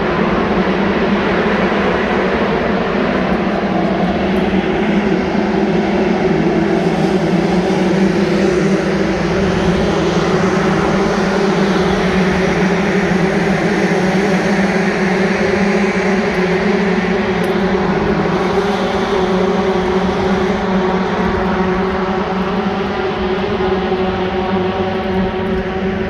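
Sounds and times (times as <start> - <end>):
engine drone: 0.0 - 26.0.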